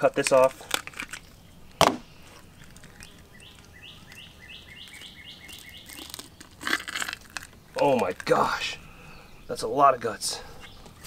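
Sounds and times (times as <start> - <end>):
small bird chirping: 1.1 - 11.0.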